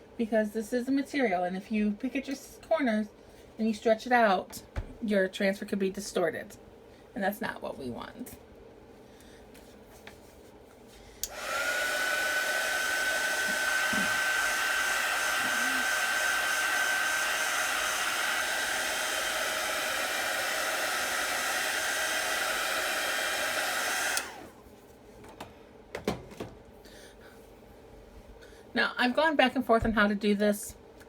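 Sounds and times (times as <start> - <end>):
hair dryer whining: 11.2 - 24.6.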